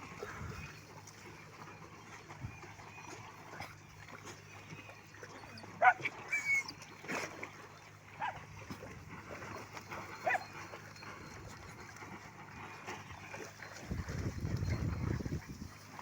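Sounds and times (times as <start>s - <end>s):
dogs yelping and whining: 5.3s - 7.0s, 10.2s - 10.7s.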